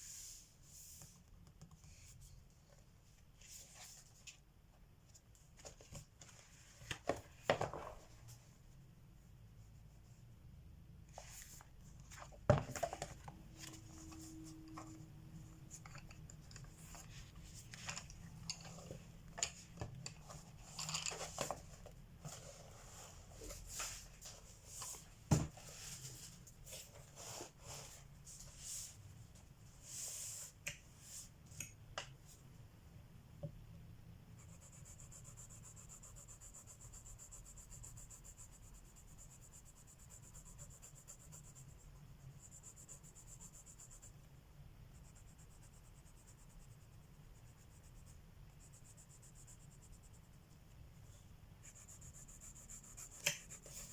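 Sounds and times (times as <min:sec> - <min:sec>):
pencils and paper clicking and rustling: 0:15.8 - 0:22.6
pencil scratching on paper: 0:34.4 - 0:44.2, 0:44.9 - 0:50.3, 0:51.6 - 0:53.9.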